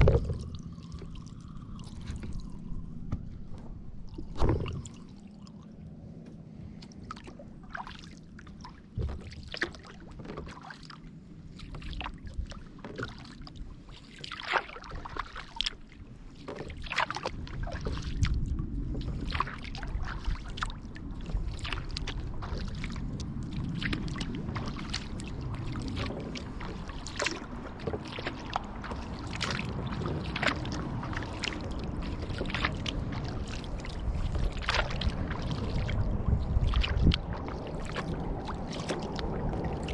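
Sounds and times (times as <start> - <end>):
low rumble: 0.0 - 9.4, 17.3 - 39.9
kayak paddle strokes in water: 0.0 - 39.9
water dripping off paddle: 19.1 - 39.9.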